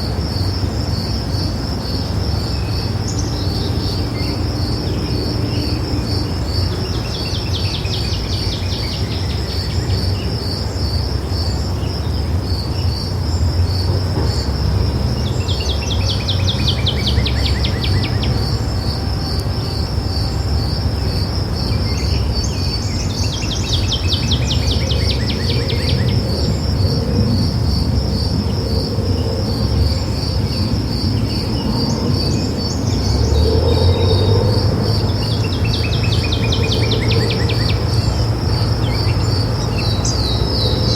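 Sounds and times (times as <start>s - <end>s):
insect chirping: 0.0s - 40.9s
songbird trilling: 33.8s - 40.9s.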